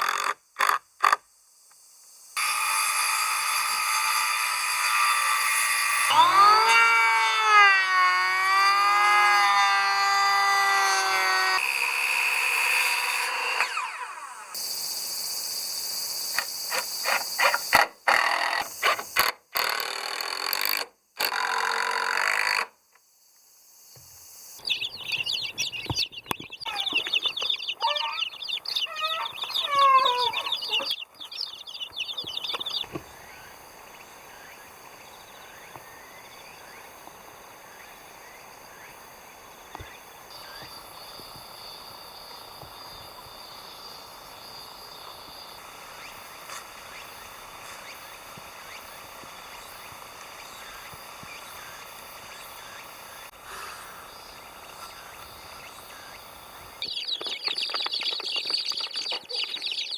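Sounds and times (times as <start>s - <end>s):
power tool working wood: 2.4s - 14.6s
dense high chirping: 24.4s - 37.0s
chickens clucking: 24.6s - 33.2s, 54.7s - 59.9s
faint bird chirps: 24.6s - 36.9s, 49.6s - 59.9s.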